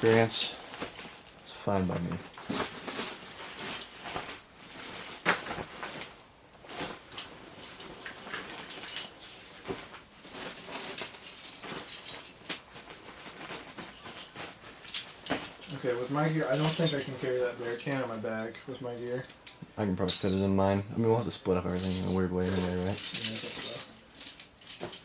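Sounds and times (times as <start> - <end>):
gear rustling and knocking: 6.7 - 18.5, 21.6 - 25.0
light metal clinks: 7.1 - 9.2, 13.8 - 20.5, 21.7 - 25.0.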